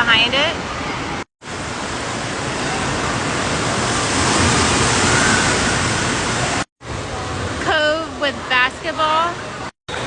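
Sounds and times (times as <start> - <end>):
splashing and falling water: 1.4 - 7.6.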